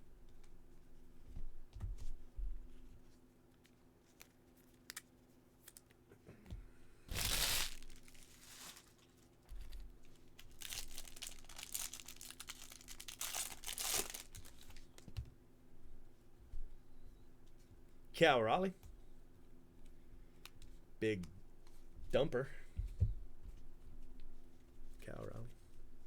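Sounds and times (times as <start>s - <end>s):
wrappers and cards rustling: 3.0s - 6.0s, 7.1s - 15.2s
card pack wrapper tearing: 7.1s - 8.9s, 10.4s - 14.8s.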